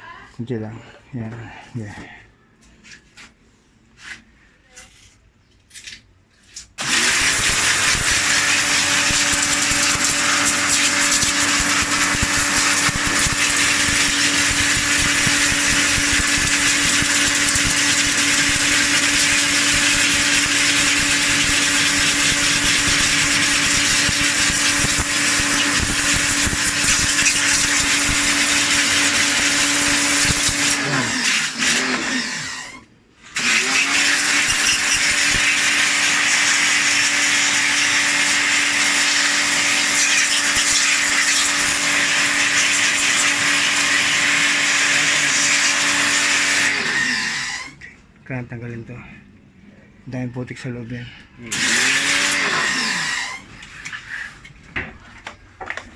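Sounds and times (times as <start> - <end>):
small electric motor hissing: 6.8 - 47.8, 51.5 - 54.4.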